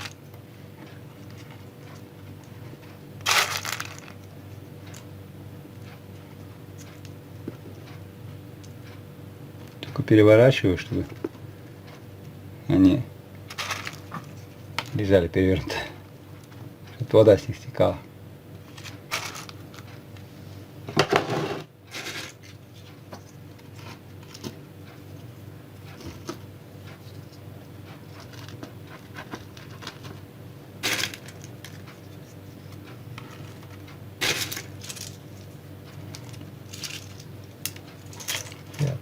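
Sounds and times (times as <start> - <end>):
nut shells clicking and clattering: 3.3 - 4.2, 13.5 - 14.1, 34.3 - 35.2, 36.1 - 38.9.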